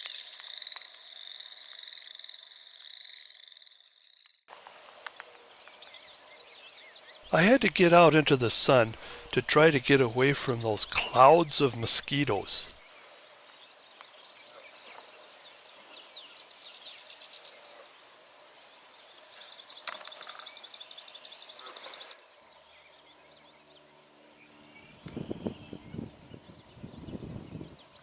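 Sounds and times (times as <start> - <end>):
small songbirds singing: 15.3 - 28.0.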